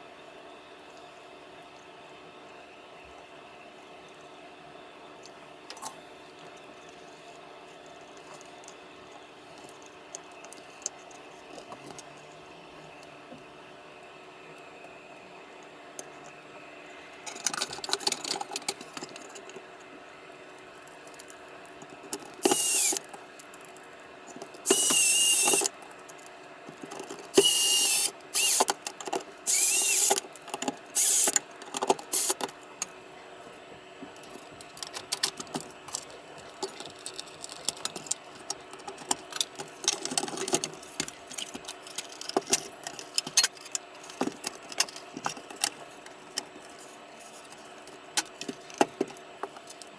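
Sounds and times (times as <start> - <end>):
clicks of handling parts: 21.1 - 33.0, 34.2 - 46.5, 47.4 - 49.9
electric motor tool whining: 22.4 - 23.0, 24.6 - 25.7, 27.3 - 28.7, 29.4 - 30.2, 30.9 - 31.3, 32.1 - 32.4.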